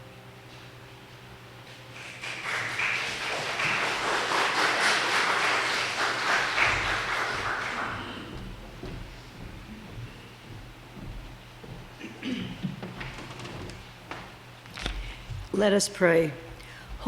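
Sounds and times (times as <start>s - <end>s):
congregation applauding: 2.0s - 8.7s.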